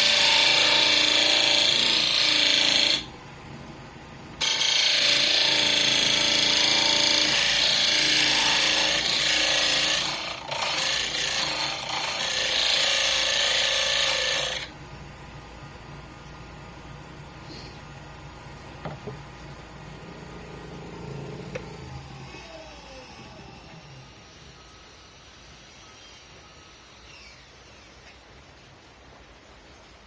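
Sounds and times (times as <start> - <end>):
wood lathe humming: 0.0 - 3.2, 4.4 - 14.7
tool rasping on wood: 4.4 - 14.7.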